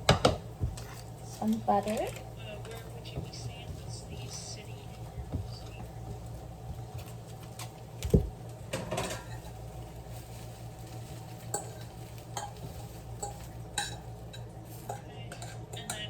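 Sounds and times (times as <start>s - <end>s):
dishes clinking and knocking: 0.0s - 1.2s, 1.9s - 7.1s, 8.0s - 9.6s, 11.5s - 16.0s
steady low hum: 0.0s - 16.0s.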